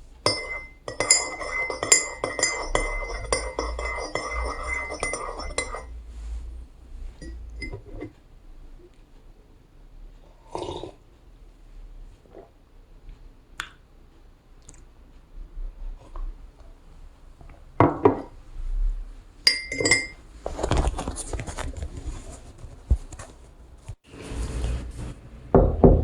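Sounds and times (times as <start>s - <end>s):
dishes and glassware clinking: 0.2s - 6.0s, 7.2s - 8.1s, 17.8s - 18.4s, 19.5s - 20.8s
ringing glass clink: 0.3s - 5.9s, 19.5s - 20.2s.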